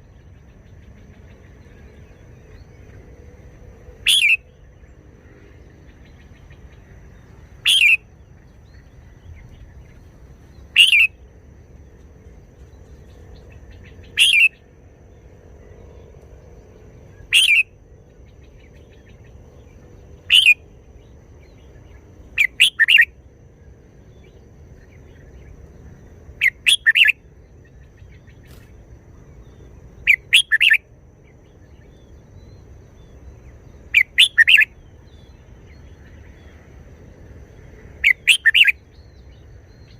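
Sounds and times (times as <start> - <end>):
bird singing short phrases: 4.0 - 4.6, 7.5 - 9.7, 10.6 - 11.2, 13.6 - 14.6, 17.2 - 17.7, 20.2 - 20.6, 21.5 - 23.1, 26.4 - 27.1, 30.0 - 30.8, 31.6 - 35.9, 38.0 - 39.9.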